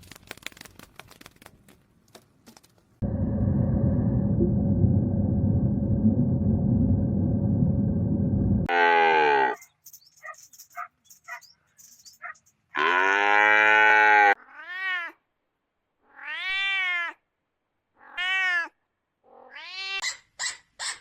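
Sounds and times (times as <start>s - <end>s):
cat meowing: 14.4s - 15.2s, 16.1s - 17.2s, 18.0s - 18.8s.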